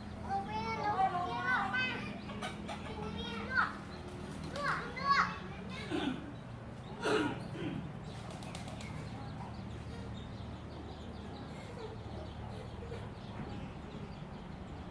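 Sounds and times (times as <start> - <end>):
birds wings flapping: 3.5 - 5.2, 8.1 - 9.3.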